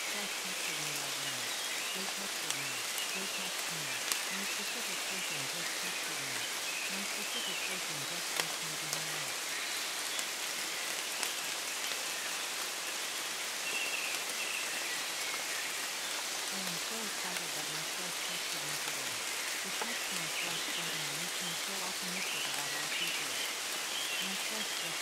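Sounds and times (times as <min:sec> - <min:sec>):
faint low voice speaking: 0:00.0 - 0:09.4, 0:16.5 - 0:23.4, 0:24.2 - 0:25.0
steady rain falling: 0:00.0 - 0:25.0.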